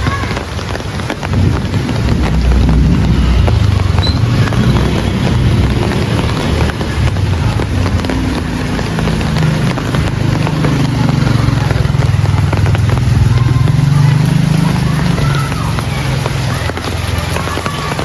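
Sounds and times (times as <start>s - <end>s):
heavy rain: 0.0s - 18.0s
low engine hum: 1.4s - 14.1s.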